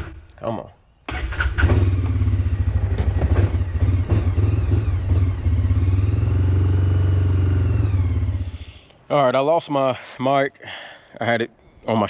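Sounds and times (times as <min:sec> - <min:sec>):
engine running unevenly: 0:01.6 - 0:08.6.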